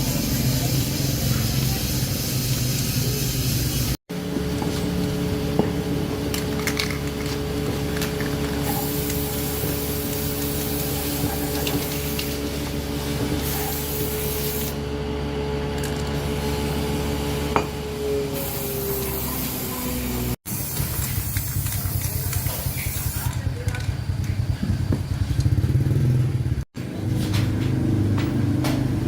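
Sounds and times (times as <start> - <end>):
hissing spray: 0.0 - 4.0, 8.0 - 14.8, 18.3 - 23.6.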